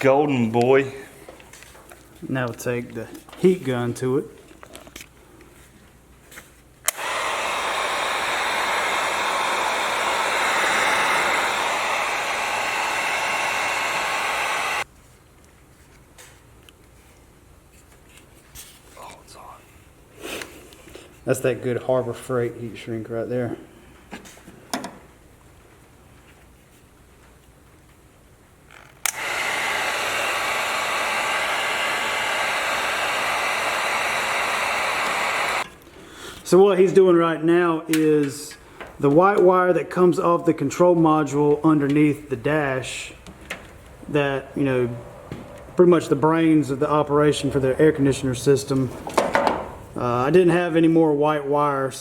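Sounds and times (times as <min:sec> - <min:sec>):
heat gun blowing: 0:06.9 - 0:14.9, 0:29.0 - 0:35.7
heat gun switch click: 0:29.1 - 0:29.6.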